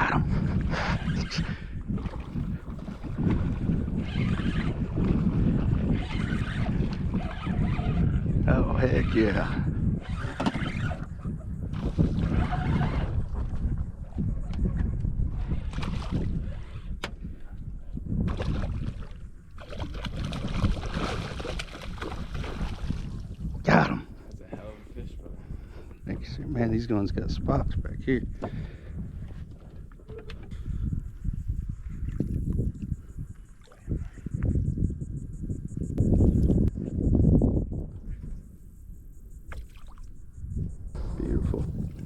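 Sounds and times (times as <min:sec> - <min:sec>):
wind on microphone: 0:00.0 - 0:42.0
water splashing around boat: 0:01.9 - 0:08.2, 0:10.0 - 0:14.0, 0:15.6 - 0:24.8, 0:39.5 - 0:42.0
faint insect chirping: 0:24.0 - 0:42.0.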